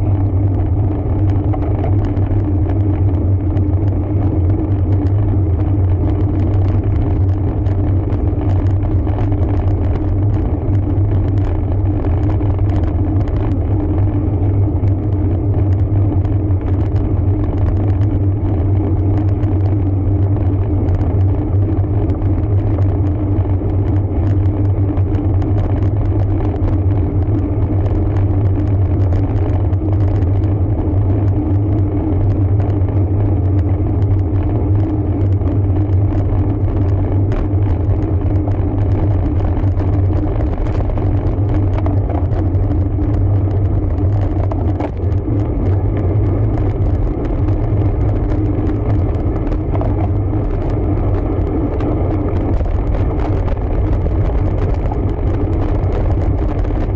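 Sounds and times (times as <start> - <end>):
faint irregular ticking: 0.0 - 56.9
road bike rumble: 0.0 - 56.9.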